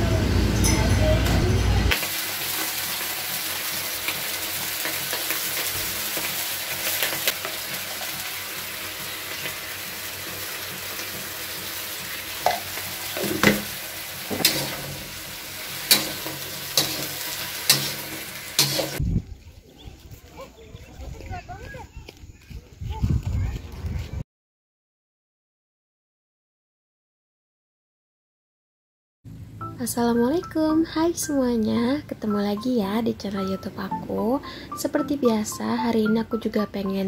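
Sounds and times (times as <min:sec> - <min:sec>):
stir-fry sizzling in a wok: 0:01.9 - 0:19.0
metal spatula scraping wok: 0:02.3 - 0:19.0.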